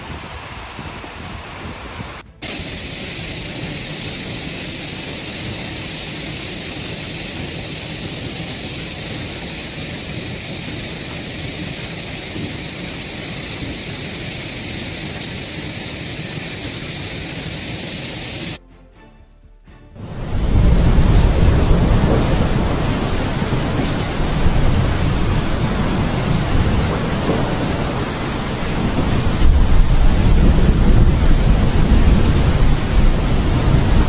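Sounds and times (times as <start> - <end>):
torrential rain pouring: 0.0 - 18.6, 20.0 - 34.0.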